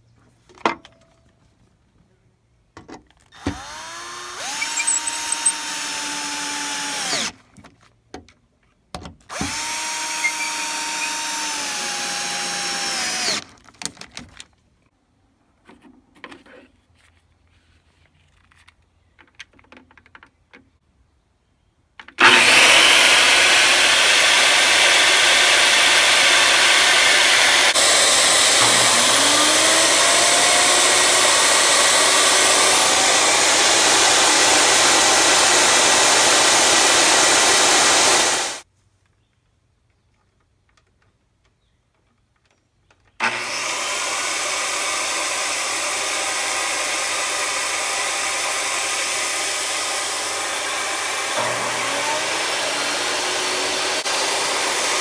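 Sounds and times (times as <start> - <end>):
table saw motor running: 3.4 - 7.3, 9.4 - 13.4, 22.2 - 38.6, 43.2 - 55.0.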